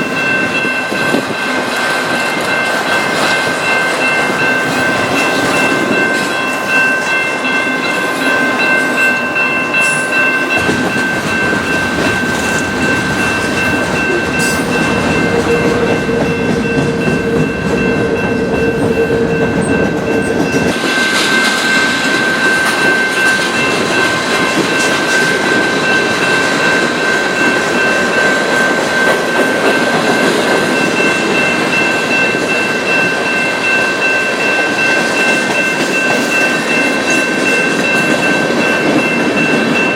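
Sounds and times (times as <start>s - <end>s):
train rumbling and rattling: 0.0s - 39.9s.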